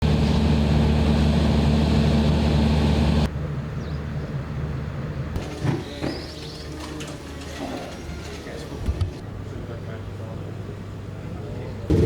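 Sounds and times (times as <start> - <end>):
quieter duller engine sound: 0.0 - 5.3, 9.3 - 12.0.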